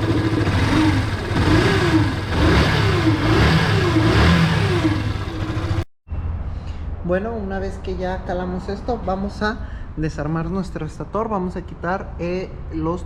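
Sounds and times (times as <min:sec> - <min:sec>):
motorcycle engine revving: 0:00.0 - 0:05.9.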